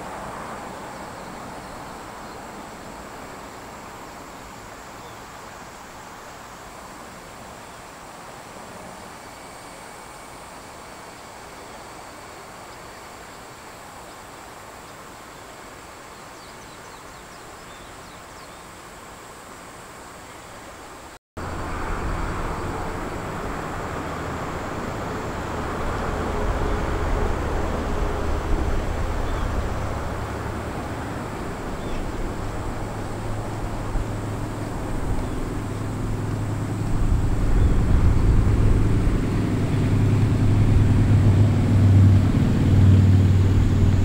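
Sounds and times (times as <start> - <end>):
steady low rumble: 21.4 - 44.0.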